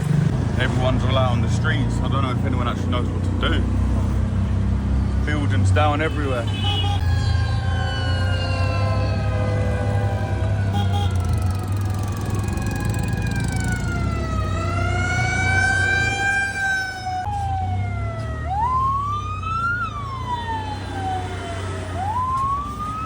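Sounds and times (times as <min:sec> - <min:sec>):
low rumble of traffic: 0:00.0 - 0:23.0
emergency vehicle siren wailing: 0:05.8 - 0:23.0.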